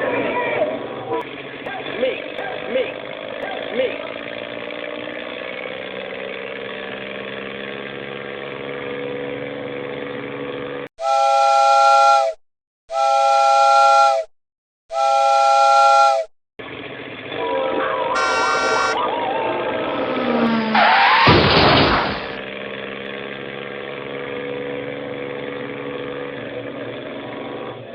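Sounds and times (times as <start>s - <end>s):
steady engine hum: 0.0s - 10.9s, 16.6s - 27.9s
horn blasts: 11.0s - 14.3s, 14.9s - 16.3s, 18.0s - 19.6s.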